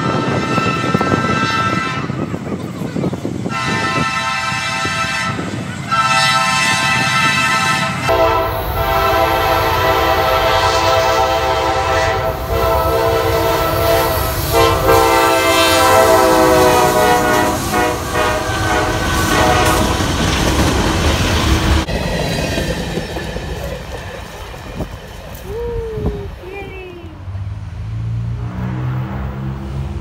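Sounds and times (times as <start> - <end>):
locomotive air horn blasts: 0.0 - 2.3, 3.5 - 20.1
train rumbling past: 0.0 - 30.0.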